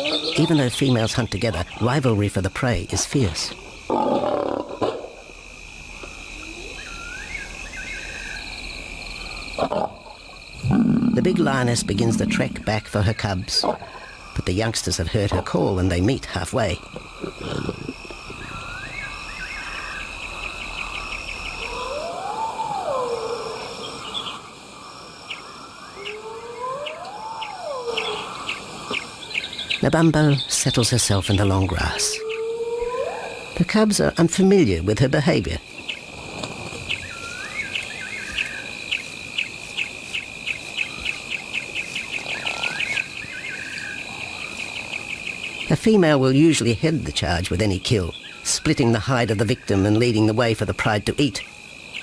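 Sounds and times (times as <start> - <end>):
insects trilling: 0.0 - 52.0.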